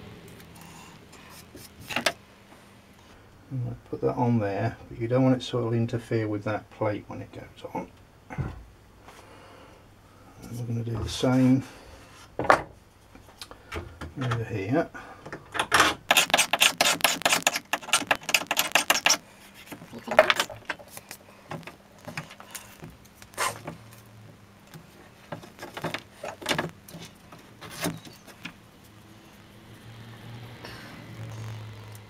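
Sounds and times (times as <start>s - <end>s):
tape crackling: 16.0s - 29.6s.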